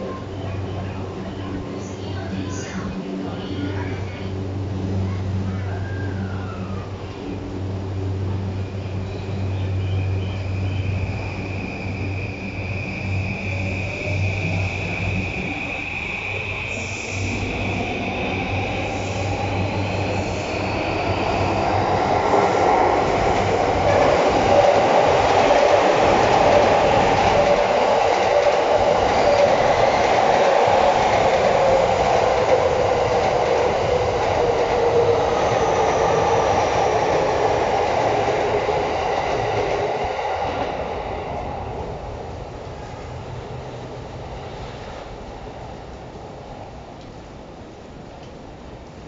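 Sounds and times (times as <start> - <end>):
train wheels on rails: 6.4 - 47.2.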